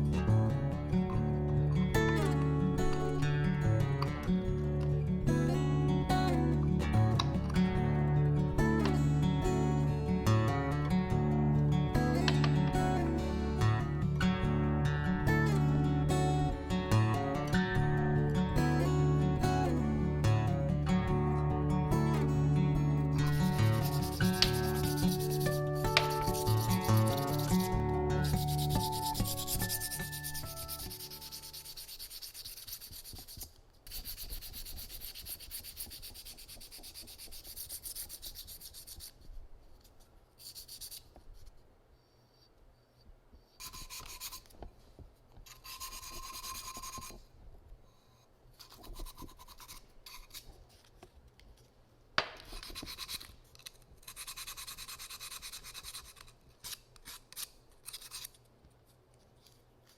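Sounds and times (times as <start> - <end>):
abrasive rubbing on ceramic: 23.3 - 39.1.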